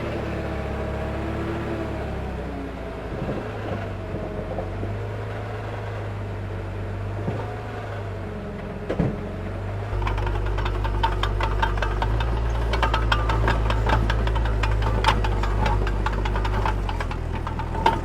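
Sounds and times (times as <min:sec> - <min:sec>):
bulldozer diesel engine running: 0:07.6 - 0:18.0
rapid clicking clatter: 0:09.9 - 0:18.0.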